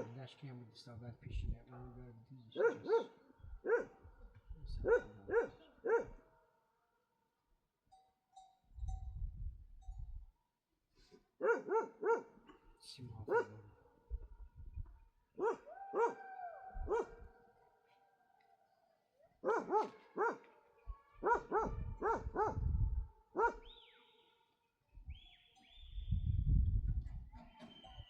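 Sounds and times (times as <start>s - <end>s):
dog barking: 2.6s - 4.2s, 4.8s - 6.3s, 11.4s - 12.4s, 13.3s - 14.3s, 15.4s - 17.4s, 19.3s - 23.8s.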